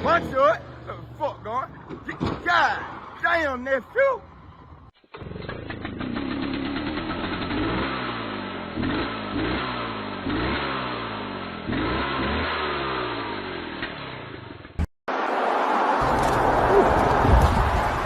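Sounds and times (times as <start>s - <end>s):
vehicle engine accelerating: 4.2s - 14.8s.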